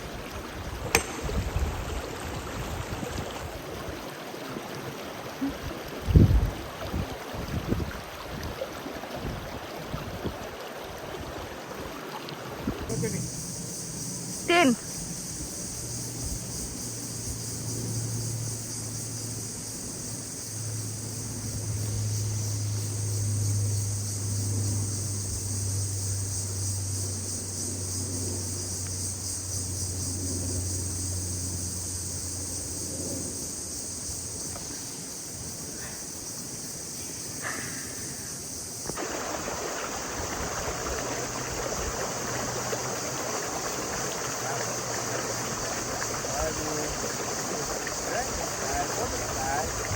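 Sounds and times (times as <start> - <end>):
insects buzzing: 0.0 - 7.0, 12.8 - 49.9
rushing water: 0.0 - 13.6, 34.2 - 49.9.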